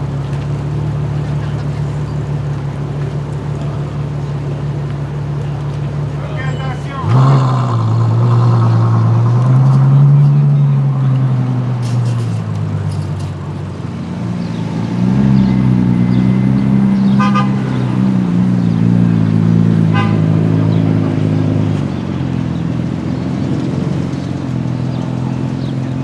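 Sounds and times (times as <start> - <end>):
car engine running: 0.0 - 26.0
car horn toots: 17.0 - 18.2, 19.8 - 20.5.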